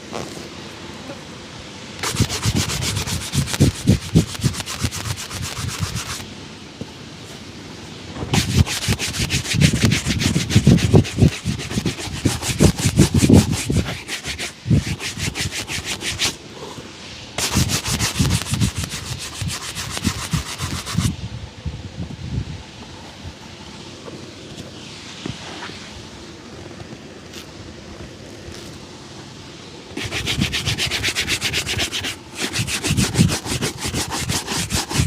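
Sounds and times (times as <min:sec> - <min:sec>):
brush scrubbing a shoe: 0:02.0 - 0:06.2, 0:08.3 - 0:16.7, 0:17.4 - 0:21.1, 0:29.9 - 0:35.0.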